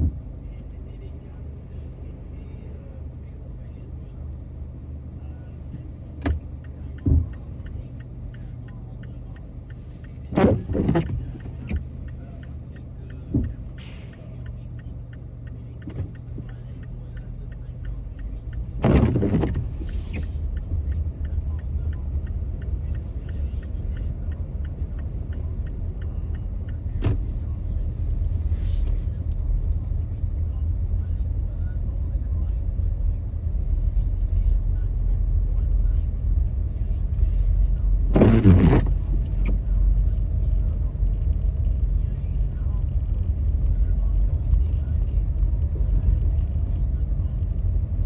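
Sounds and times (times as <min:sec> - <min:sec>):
car engine and road rumble: 0:00.0 - 0:48.0
faint regular ticking: 0:05.7 - 0:28.6
short thumps or rushes: 0:10.1 - 0:12.5, 0:13.2 - 0:14.2, 0:18.2 - 0:20.7, 0:22.0 - 0:29.0, 0:38.1 - 0:39.6.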